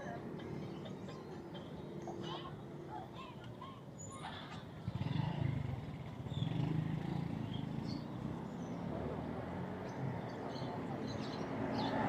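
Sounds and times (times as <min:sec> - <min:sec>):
passing motor traffic rumble: 0:04.2 - 0:12.0.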